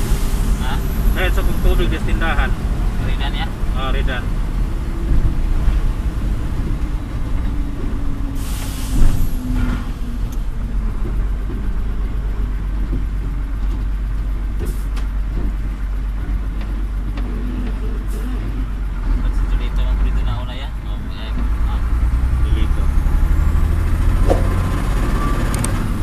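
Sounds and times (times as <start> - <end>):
heavy vehicle engine rumbling: 0.0 - 26.0
short air hiss: 8.4 - 9.3.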